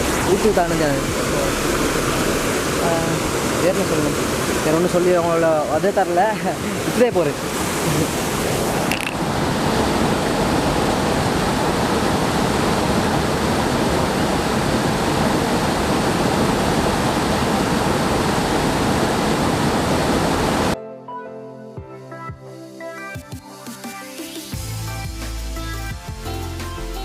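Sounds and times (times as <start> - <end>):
waterfall rushing: 0.0 - 20.8
music: 20.8 - 27.0.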